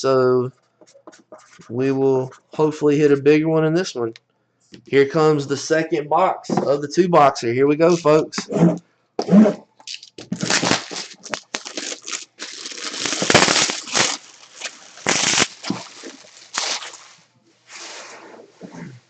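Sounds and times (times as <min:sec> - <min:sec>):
plastic wrap crinkling and tearing: 0:09.8 - 0:17.2.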